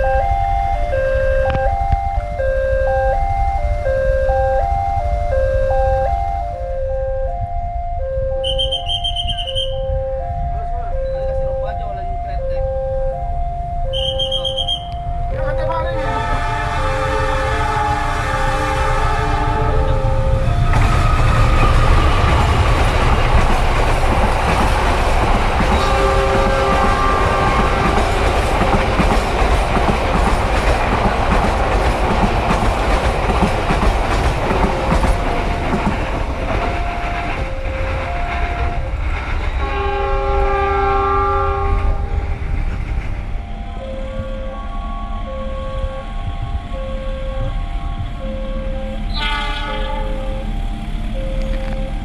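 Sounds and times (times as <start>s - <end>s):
two-tone level-crossing signal: 0.0s - 16.1s, 17.1s - 22.5s, 43.4s - 52.0s
train horn: 8.4s - 10.1s, 13.9s - 22.9s, 25.6s - 29.0s, 36.5s - 42.2s, 44.0s - 50.6s
train wheels clattering on rails: 16.2s - 44.8s.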